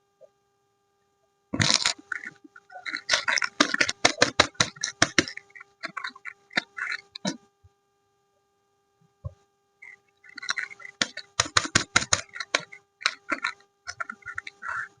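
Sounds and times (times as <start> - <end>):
dense crackles: 1.6 - 7.4, 9.8 - 15.0.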